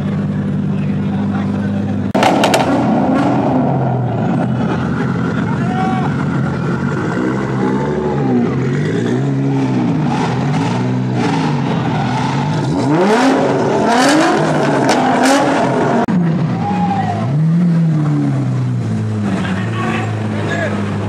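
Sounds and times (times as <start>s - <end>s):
sports car engine revving: 0.0s - 16.5s
exhaust pops: 2.1s - 4.4s.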